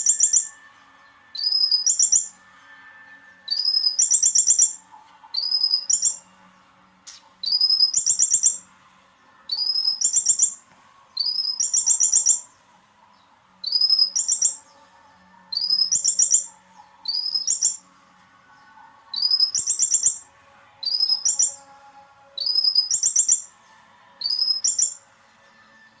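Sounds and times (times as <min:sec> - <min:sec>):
bird rapid trilled song: 0:00.0 - 0:02.4, 0:03.5 - 0:06.3, 0:07.4 - 0:08.7, 0:09.5 - 0:10.6, 0:11.2 - 0:14.8, 0:15.5 - 0:17.9, 0:19.1 - 0:21.6, 0:22.4 - 0:23.6, 0:24.2 - 0:25.0.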